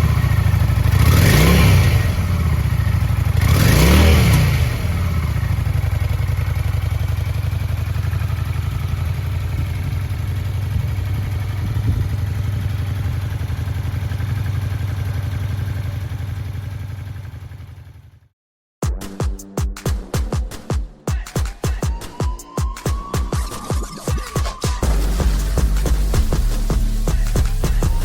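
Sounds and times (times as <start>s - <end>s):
motorcycle engine revving and idling: 0.0s - 18.3s, 24.7s - 28.0s.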